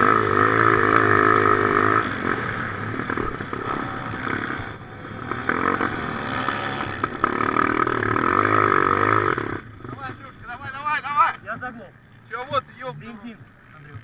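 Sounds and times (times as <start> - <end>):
motocross bike engine revving: 0.0 - 11.1.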